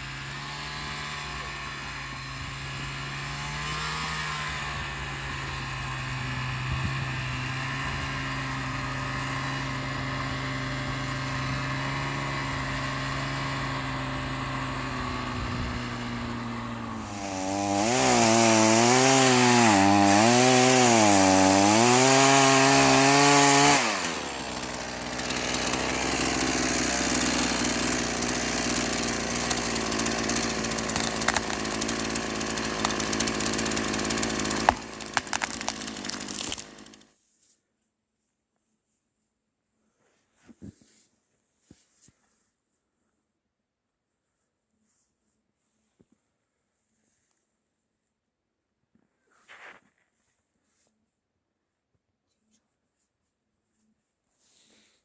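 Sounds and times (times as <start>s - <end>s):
engine running and revving: 1.9s - 24.7s.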